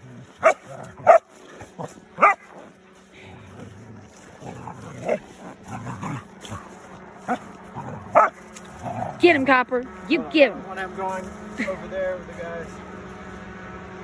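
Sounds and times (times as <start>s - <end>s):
dog barking and yipping: 0.3s - 2.7s, 4.7s - 8.5s.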